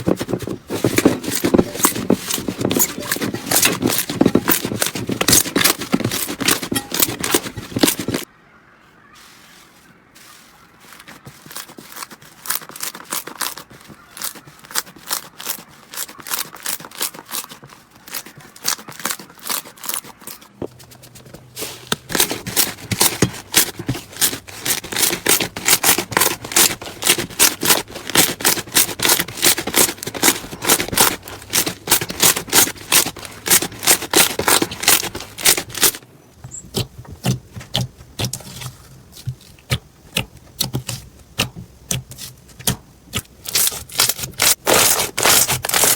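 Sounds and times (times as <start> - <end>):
slime crackling and popping: 39.2 - 45.9.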